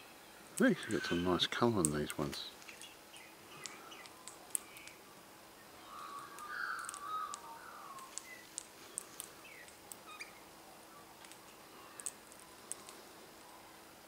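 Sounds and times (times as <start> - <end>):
birds chirping: 0.0 - 14.0
downward-sliding bird calls: 0.7 - 1.5, 5.7 - 13.7.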